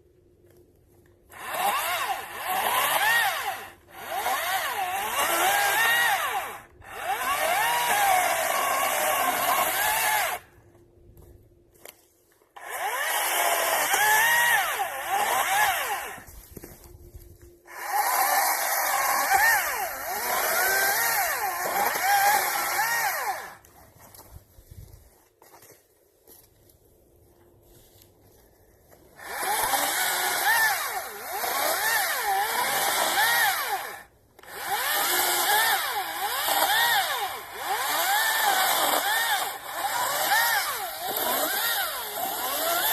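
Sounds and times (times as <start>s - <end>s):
chainsaw cutting wood: 1.2s - 10.5s, 12.5s - 16.7s, 17.7s - 23.8s, 29.2s - 42.9s.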